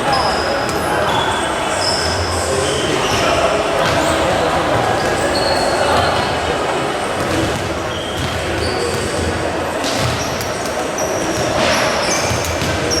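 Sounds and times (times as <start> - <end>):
crowd din: 0.0 - 13.0
shoes squeaking on court: 0.0 - 13.0.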